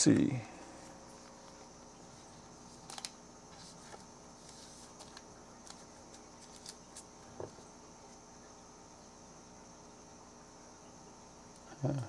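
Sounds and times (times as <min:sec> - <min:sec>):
faint background hum: 0:00.0 - 0:12.0
cards clicking and rustling: 0:02.7 - 0:07.6.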